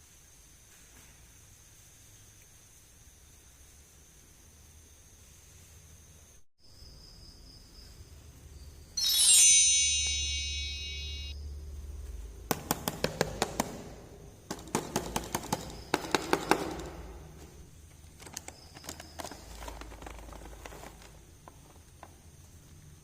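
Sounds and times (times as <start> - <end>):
bright chime: 9.0 - 11.4
plastic toy pieces clicking: 18.1 - 21.2.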